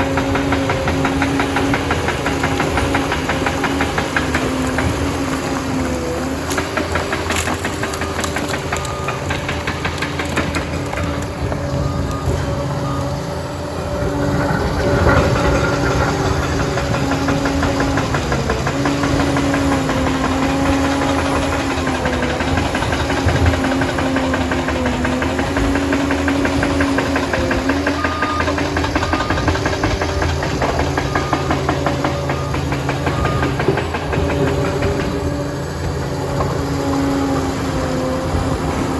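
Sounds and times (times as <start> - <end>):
diesel engine under varying load: 0.0 - 38.9
fast mechanical clatter: 6.4 - 11.7, 13.9 - 36.6.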